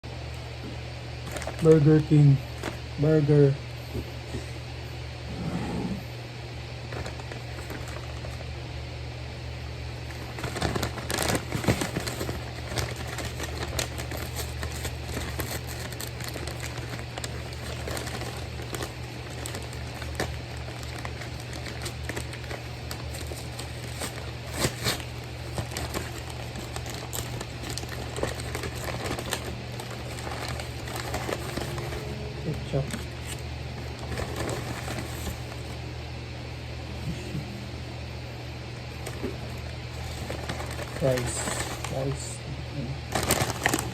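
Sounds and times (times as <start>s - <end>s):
paper wrappers crinkling: 1.2s - 3.3s, 6.8s - 8.6s, 10.0s - 35.9s, 38.8s - 42.4s, 43.0s - 43.9s.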